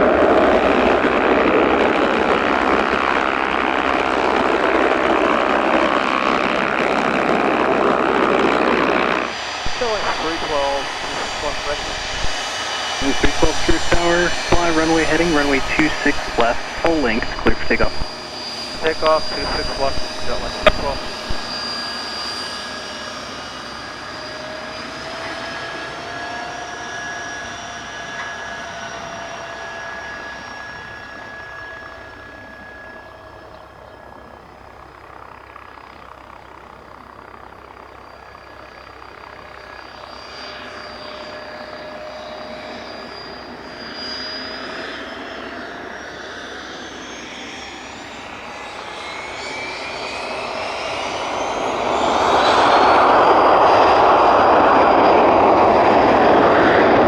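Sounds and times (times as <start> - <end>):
jet engines whining: 6.0 - 33.9, 40.0 - 57.0.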